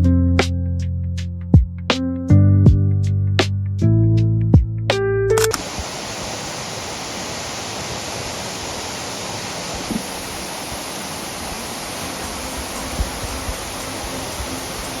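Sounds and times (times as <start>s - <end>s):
music: 0.0s - 5.6s, 12.0s - 15.0s
waterfall rushing: 5.6s - 15.0s.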